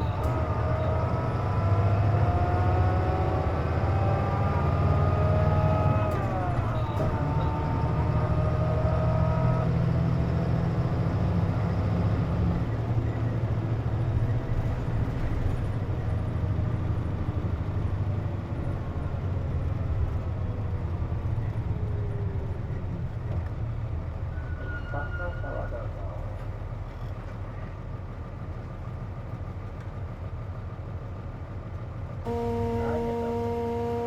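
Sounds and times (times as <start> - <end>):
diesel engine low drone: 0.0 - 34.0
high multi-tone whine: 32.3 - 34.0.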